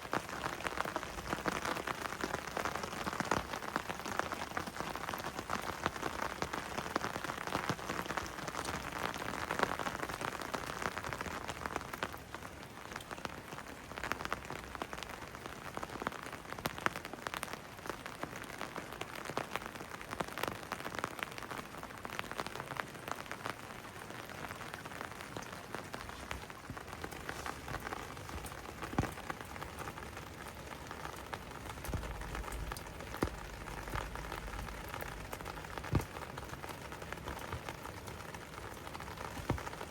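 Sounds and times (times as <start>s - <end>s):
rain falling: 0.0s - 39.9s
loud water drips: 26.3s - 39.9s.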